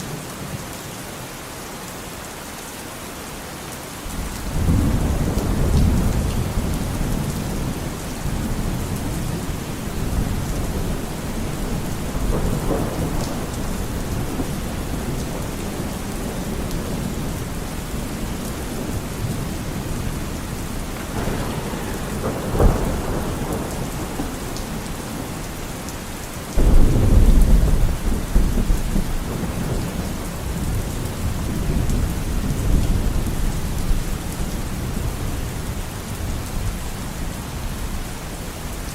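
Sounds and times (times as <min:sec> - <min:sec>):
steady rain: 0:00.0 - 0:38.9
rolling thunder: 0:04.1 - 0:36.8.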